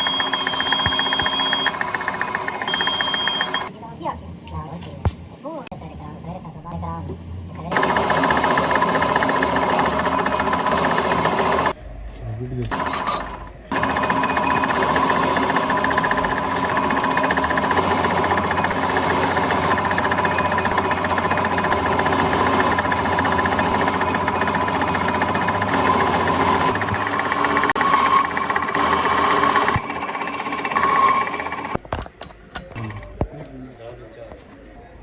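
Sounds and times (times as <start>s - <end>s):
workshop machine rattling and whining: 0.0s - 3.7s, 7.7s - 11.8s, 12.7s - 32.0s.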